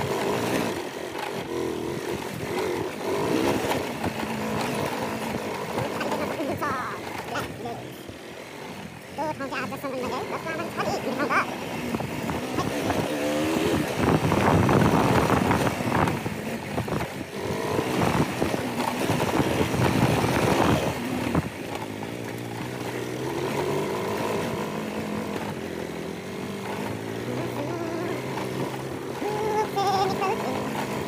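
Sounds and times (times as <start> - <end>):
motorcycle engine running: 0.0 - 31.0
wind and road noise: 0.0 - 31.0.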